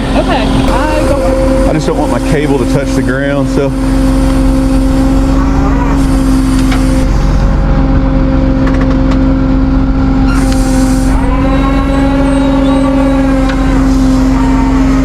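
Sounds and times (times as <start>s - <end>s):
higher tones: 0.0s - 8.6s
truck engine humming: 0.0s - 15.0s.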